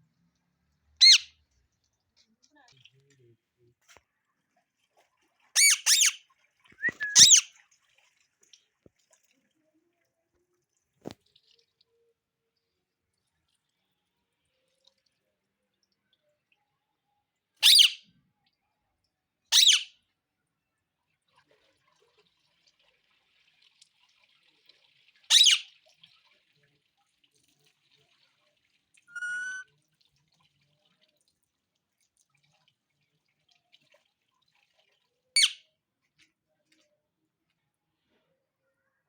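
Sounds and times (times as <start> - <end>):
parrot screeching: 1.0 - 1.3, 5.6 - 6.2, 6.8 - 7.5, 17.6 - 18.0, 19.5 - 19.9, 25.3 - 25.6, 29.1 - 29.7, 35.4 - 35.6
parrot whistle-like call: 1.0 - 1.3, 5.6 - 6.2, 6.8 - 7.5, 17.6 - 18.0, 19.6 - 19.9, 25.3 - 25.6, 29.1 - 29.7.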